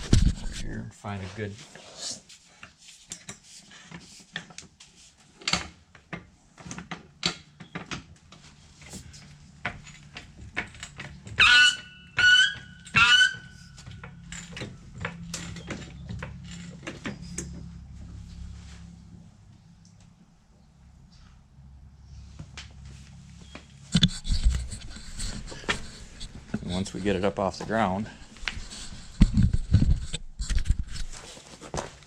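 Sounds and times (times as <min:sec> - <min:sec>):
floor jack squeaking: 0:09.8 - 0:17.8.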